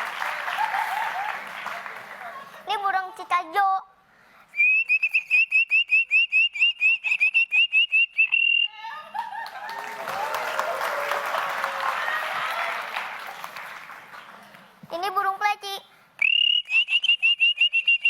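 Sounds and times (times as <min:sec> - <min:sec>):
applause: 0:00.0 - 0:02.7, 0:09.2 - 0:14.8
crowd noise: 0:00.0 - 0:03.3, 0:08.8 - 0:15.0
child whistling bird chirps: 0:04.6 - 0:08.8, 0:16.2 - 0:18.0.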